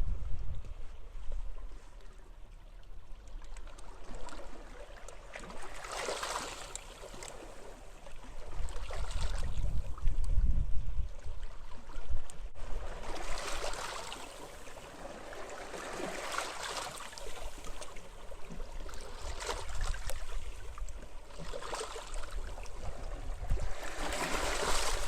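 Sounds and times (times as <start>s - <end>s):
wind rumbling on microphone: 0.0s - 2.2s, 8.2s - 13.8s, 18.3s - 21.4s, 22.0s - 25.0s
waves washing onto beach: 12.8s - 18.2s, 21.5s - 25.0s.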